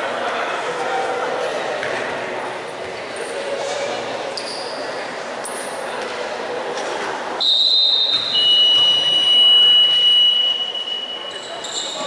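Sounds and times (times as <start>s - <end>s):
shrill high-pitched signal tone: 7.4s - 12.0s.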